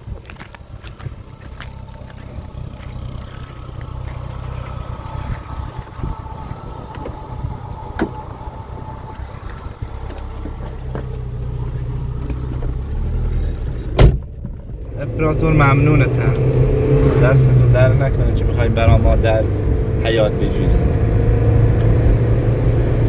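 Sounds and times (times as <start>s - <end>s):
car engine rumbling: 0.0s - 23.0s
faint whine: 0.4s - 13.9s.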